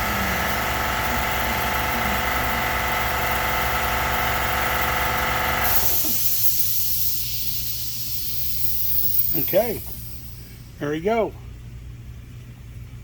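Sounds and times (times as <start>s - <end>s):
machine spindle motor running: 0.0s - 11.0s
steady high hiss: 6.0s - 11.1s.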